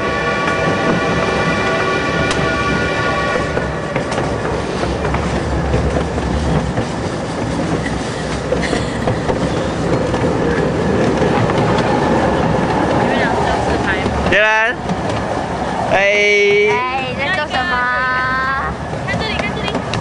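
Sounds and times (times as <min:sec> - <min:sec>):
train cars rumbling and rattling: 0:00.0 - 0:20.0
wheels clicking over rail joints: 0:03.6 - 0:15.3, 0:18.8 - 0:20.0.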